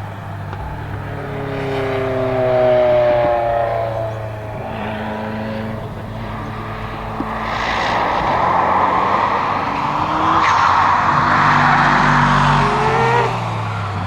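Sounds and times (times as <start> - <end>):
car engine and exhaust rushing: 0.0 - 14.0.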